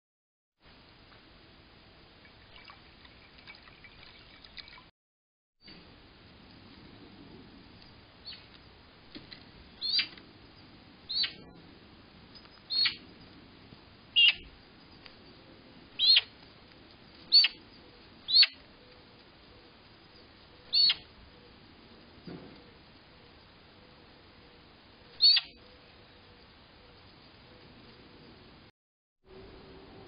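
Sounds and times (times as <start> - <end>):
bird chirping: 8.2 - 8.6, 9.7 - 11.6, 12.3 - 13.2, 14.2 - 14.5, 16.0 - 16.4, 17.2 - 21.6, 22.6 - 27.7.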